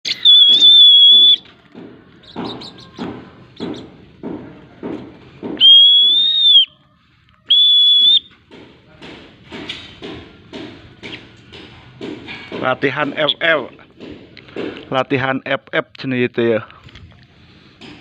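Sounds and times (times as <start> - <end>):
high recall whistle notes: 0.1 - 1.5, 5.6 - 6.8, 7.4 - 8.4.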